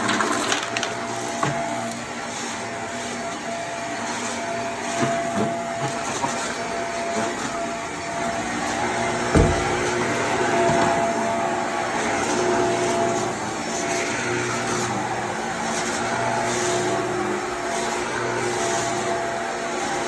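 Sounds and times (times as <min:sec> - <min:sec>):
vacuum cleaner whine: 0:00.0 - 0:20.0
sharp thump: 0:09.3 - 0:09.9.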